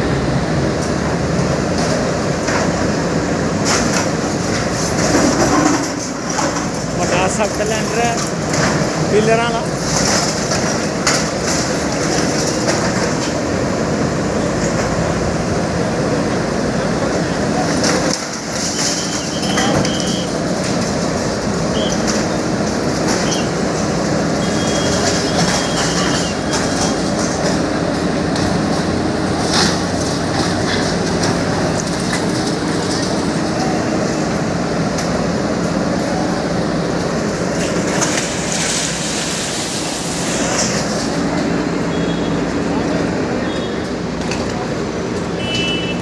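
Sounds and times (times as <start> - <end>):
heavy diesel machine engine: 0.0 - 46.0.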